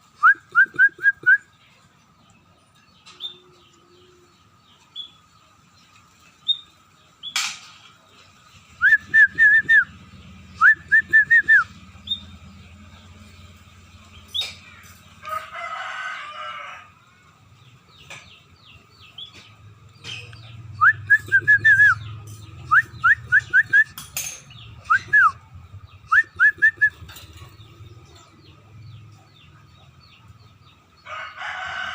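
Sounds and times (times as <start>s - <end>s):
small bird chirps: 8.5s - 15.2s
whistled bird notes: 8.7s - 12.4s, 20.6s - 25.4s, 26.0s - 27.2s.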